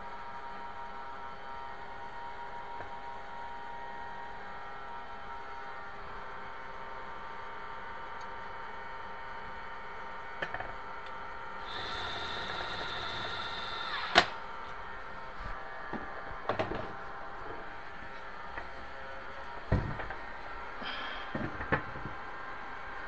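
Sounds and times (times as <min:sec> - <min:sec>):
steady background hum: 0:00.0 - 0:23.0
whirring mechanical whine: 0:09.5 - 0:23.0.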